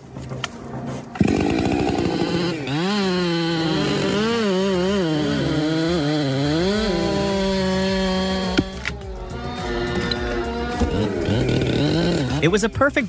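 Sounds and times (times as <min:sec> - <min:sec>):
chainsaw engine running at high revs: 0:01.2 - 0:12.5.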